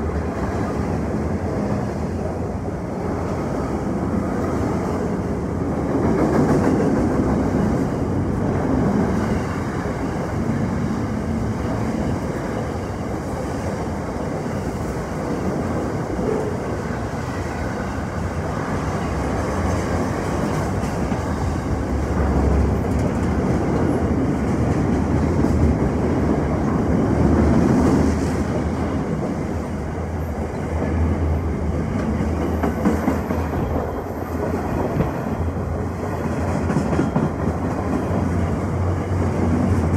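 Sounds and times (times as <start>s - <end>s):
train rumble: 0.0s - 39.9s
train wheels clattering: 31.9s - 35.4s, 36.2s - 38.4s.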